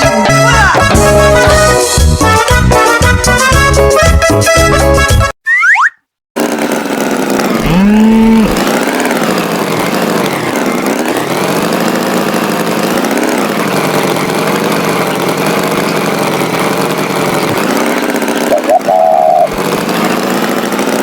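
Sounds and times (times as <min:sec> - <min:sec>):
tractor engine running: 0:06.4 - 0:21.0.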